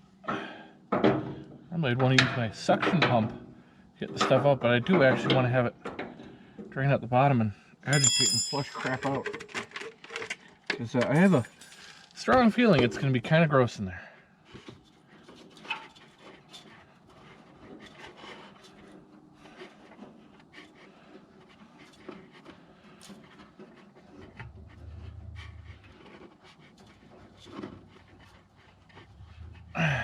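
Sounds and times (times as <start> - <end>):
rubbing: 14.8 - 29.8.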